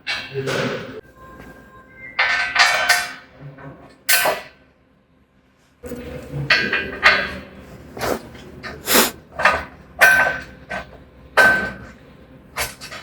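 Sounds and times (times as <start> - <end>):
metal clanks and knocks: 2.2 - 4.5.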